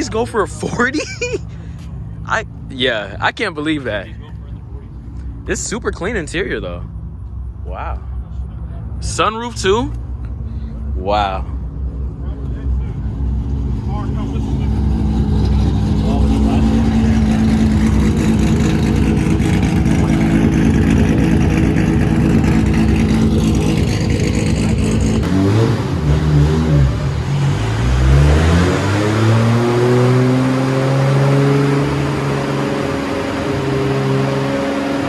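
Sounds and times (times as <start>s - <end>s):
car engine running at high speed: 0.0s - 35.0s
engine revving: 12.2s - 35.0s.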